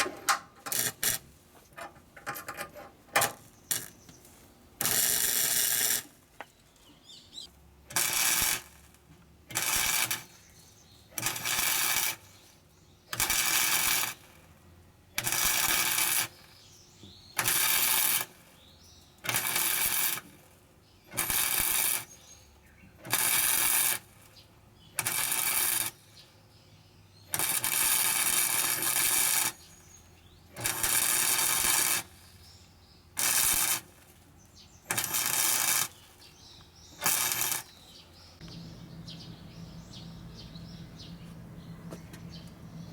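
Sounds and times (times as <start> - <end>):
welder tack-welding sheet metal: 0.0 - 4.2, 4.8 - 6.3, 7.8 - 16.6, 17.4 - 18.6, 19.2 - 26.3, 27.3 - 32.5, 33.1 - 38.0.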